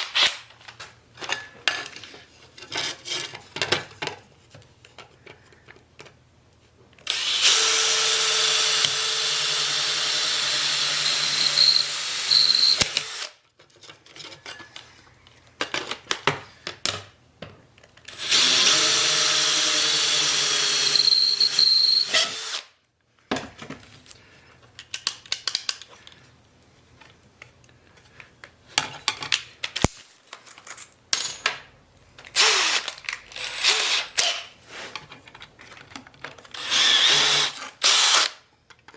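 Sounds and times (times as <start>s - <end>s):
electric power drill running: 7.1s - 13.4s, 18.1s - 22.7s, 32.4s - 32.8s, 36.5s - 38.4s
metal parts clinking: 29.7s - 34.5s.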